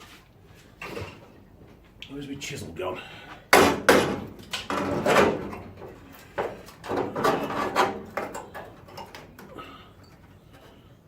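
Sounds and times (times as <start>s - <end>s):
metal tools clattering and scraping: 4.4s - 10.9s.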